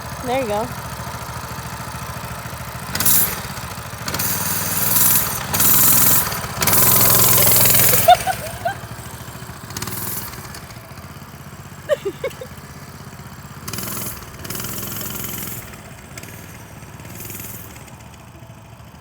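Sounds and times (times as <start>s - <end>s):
mini bike engine running: 0.0s - 19.0s.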